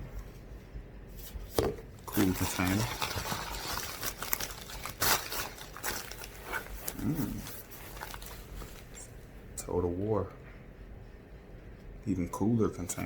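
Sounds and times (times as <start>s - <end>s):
rustling: 1.1s - 9.2s.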